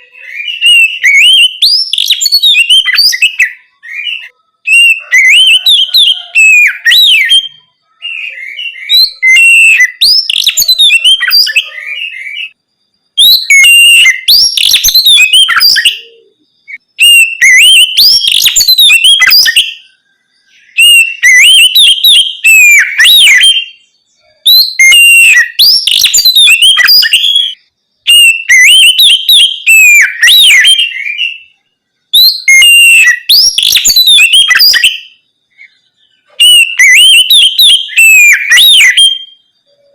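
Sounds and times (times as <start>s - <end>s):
songbird whistles and trills: 0.0s - 39.9s.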